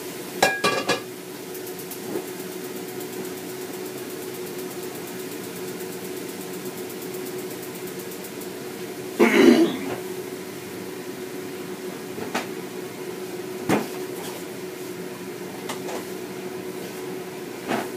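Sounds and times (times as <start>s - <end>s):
kitchen appliance humming: 0.0s - 17.9s
cookware clattering: 0.4s - 1.1s.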